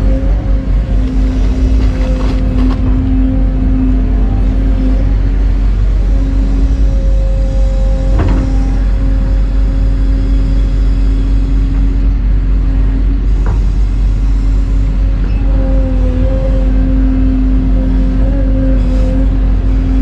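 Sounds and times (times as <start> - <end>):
excavator diesel engine running: 0.0 - 20.0
hydraulic pump whine: 0.0 - 20.0.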